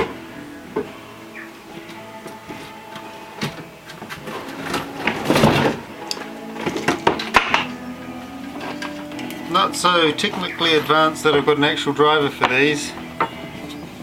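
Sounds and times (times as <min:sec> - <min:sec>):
tools rummaged clicking and knocking: 0:01.8 - 0:07.8, 0:08.5 - 0:09.4
rattling clatter of hardware: 0:03.4 - 0:05.9.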